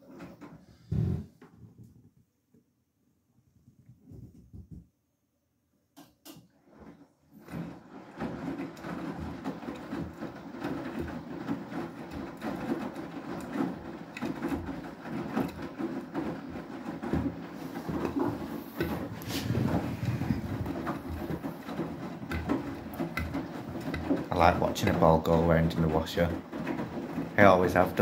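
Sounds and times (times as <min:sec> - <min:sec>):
water sloshing with soft knocks: 0:06.6 - 0:28.0
washing machine drum tumbling: 0:06.7 - 0:28.0.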